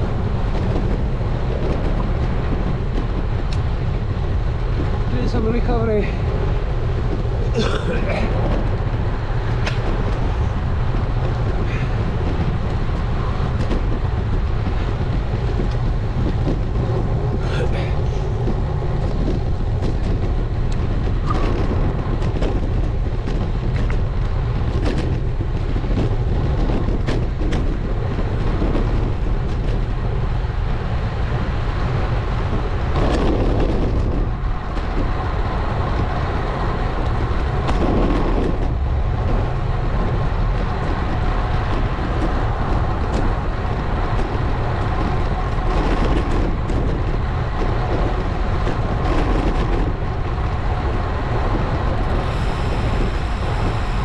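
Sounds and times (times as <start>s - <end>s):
bicycle tyre and road noise: 0.0s - 54.0s
wind on microphone: 0.0s - 54.0s.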